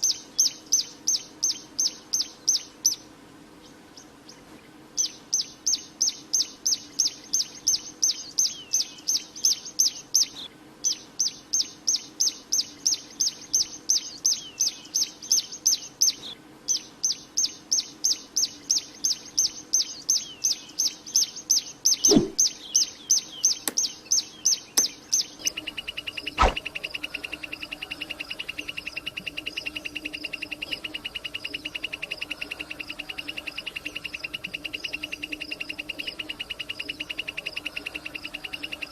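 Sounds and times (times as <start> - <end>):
bird chirping: 0.0 - 38.9
steady bird trill: 5.0 - 38.9
brief knock: 22.1 - 22.4, 26.4 - 26.6.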